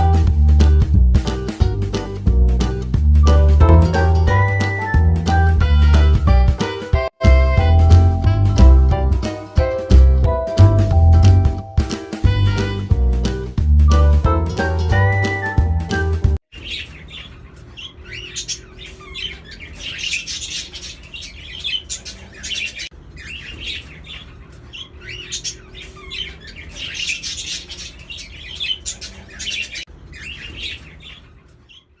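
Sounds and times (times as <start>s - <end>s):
budgerigars chattering and chirping: 16.6s - 31.9s.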